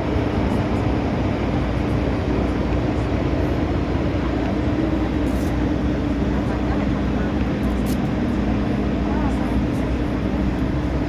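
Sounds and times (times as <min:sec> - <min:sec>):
constant hum: 0:00.0 - 0:11.0.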